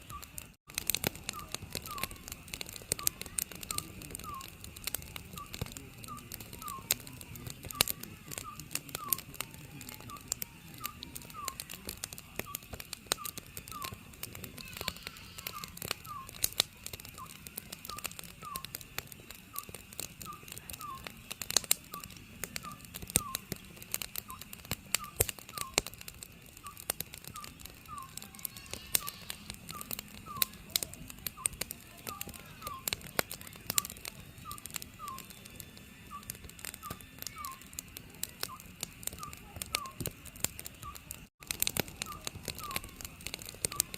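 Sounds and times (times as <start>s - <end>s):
wood fire crackling and popping: 0.0s - 43.9s
owl hooting: 3.0s - 4.6s, 14.6s - 16.5s, 26.6s - 30.8s, 42.0s - 43.0s.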